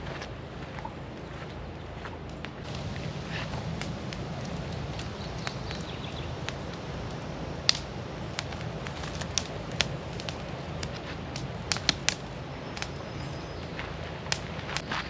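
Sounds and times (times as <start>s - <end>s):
footsteps crunching on dry ground: 0.0s - 15.0s.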